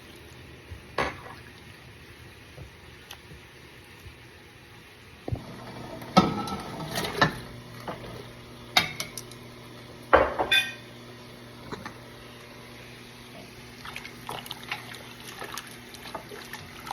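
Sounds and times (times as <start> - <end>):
pots and utensils clanking: 5.3 - 9.3, 10.1 - 10.9.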